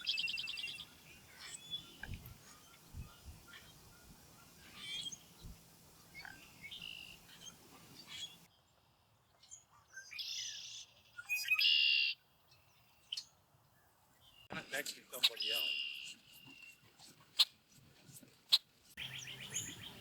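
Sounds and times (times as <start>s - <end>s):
bird chirps: 0.0s - 13.4s, 15.1s - 17.5s, 18.5s - 20.0s.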